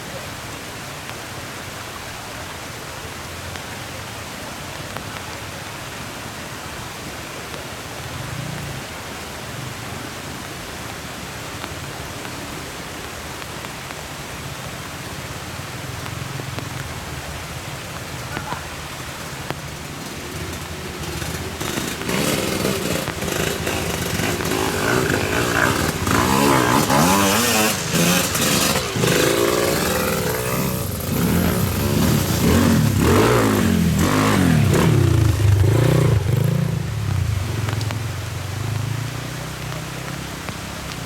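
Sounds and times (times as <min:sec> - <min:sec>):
motorcycle engines revving: 0:15.7 - 0:41.0.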